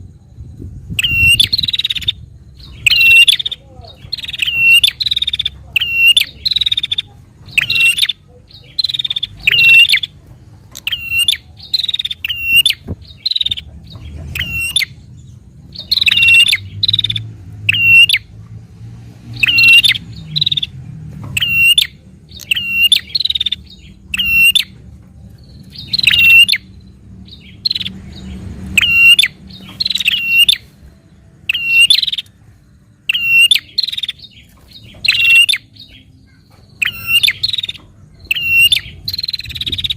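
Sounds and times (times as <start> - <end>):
bird calling sharp repeated notes: 1.0 - 10.2, 10.8 - 13.7, 14.3 - 15.0, 15.8 - 18.3, 19.4 - 20.7, 21.4 - 24.7, 25.7 - 26.7, 28.7 - 30.7, 31.5 - 32.4, 33.0 - 39.9.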